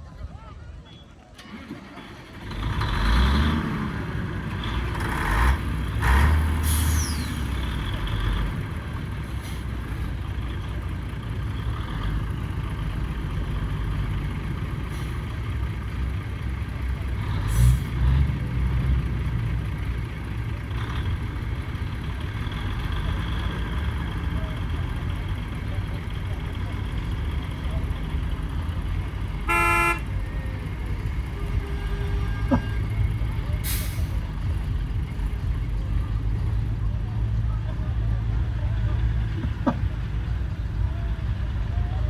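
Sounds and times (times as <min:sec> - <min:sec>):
lorry engines revving: 0:00.7 - 0:42.0
air brake hisses: 0:06.6 - 0:07.4, 0:33.6 - 0:34.2.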